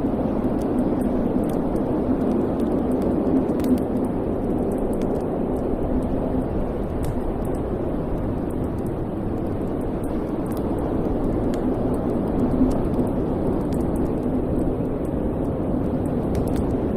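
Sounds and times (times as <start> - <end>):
fire crackles and pops: 0.0 - 16.9
fire flames rumbling: 0.0 - 16.9.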